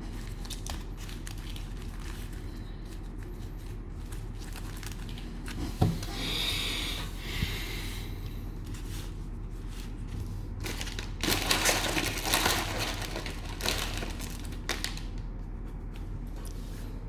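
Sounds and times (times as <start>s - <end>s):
cellophane wrapper crinkling: 0.0s - 6.1s, 9.8s - 15.3s.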